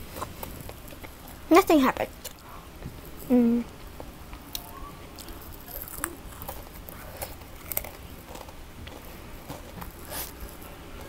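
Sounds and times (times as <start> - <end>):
chewing crunchy biscuit: 0.0 - 1.4, 4.3 - 11.0.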